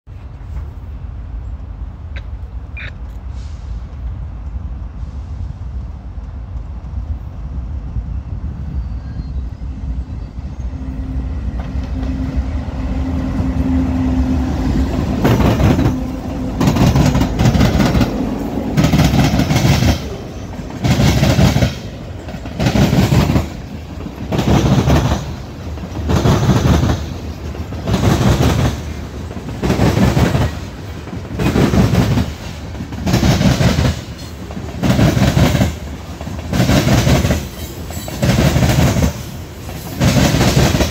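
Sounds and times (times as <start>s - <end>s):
diesel locomotives rumbling: 0.1s - 40.9s.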